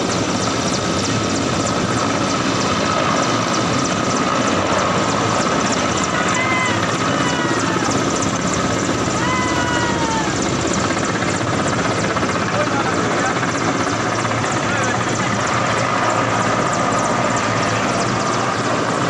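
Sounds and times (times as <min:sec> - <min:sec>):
helicopter rotor chop: 0:00.0 - 0:19.0
short falling calls: 0:09.0 - 0:10.5.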